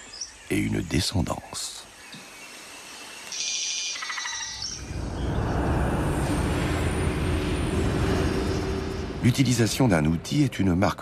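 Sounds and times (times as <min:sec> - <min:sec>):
low rumbling drone: 0:04.6 - 0:11.0.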